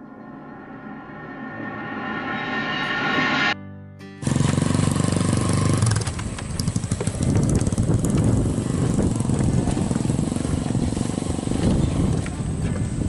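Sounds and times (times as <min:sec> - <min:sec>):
low hum: 0:00.0 - 0:05.5
wind buffeting microphone: 0:06.2 - 0:13.0.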